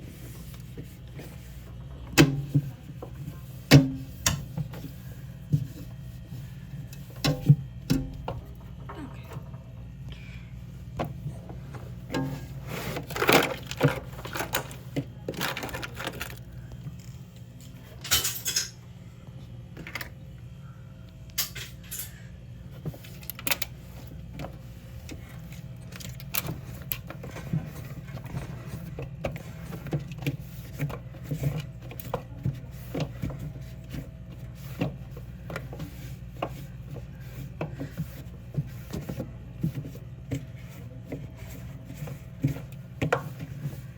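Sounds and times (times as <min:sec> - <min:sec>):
steady low hum: 0:00.0 - 0:43.9
items knocking and clattering: 0:11.0 - 0:17.1.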